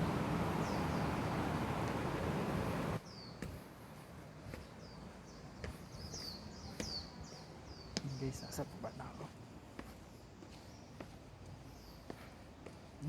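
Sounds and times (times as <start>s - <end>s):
steady rushing noise: 0.0s - 3.0s
bird chirping: 0.0s - 3.4s, 4.6s - 9.2s.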